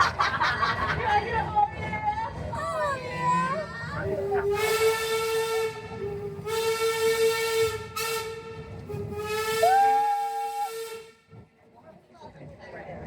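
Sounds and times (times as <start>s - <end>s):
steam locomotive whistle blasts: 4.5s - 11.2s.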